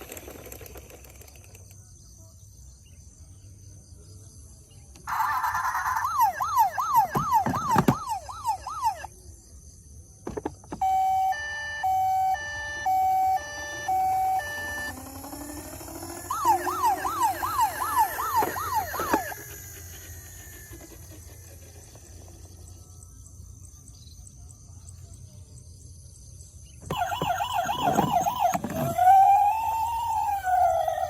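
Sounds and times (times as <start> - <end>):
toy electronic siren wailing: 5.0 - 9.2, 10.7 - 22.4, 26.8 - 31.0.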